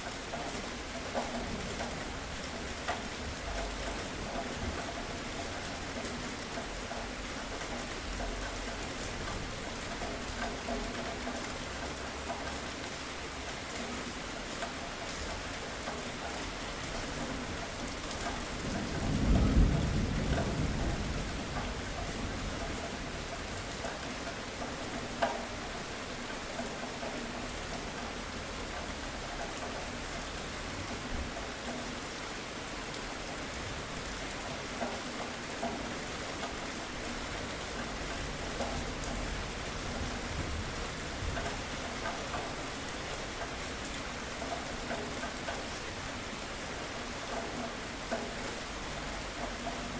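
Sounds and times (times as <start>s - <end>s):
heavy rain pattering: 0.0s - 49.9s
low rumble of thunder: 18.2s - 23.8s, 37.5s - 42.6s.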